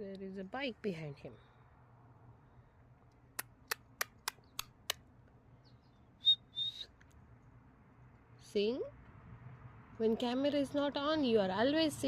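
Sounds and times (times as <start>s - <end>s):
high bird chirps: 5.6s - 6.9s.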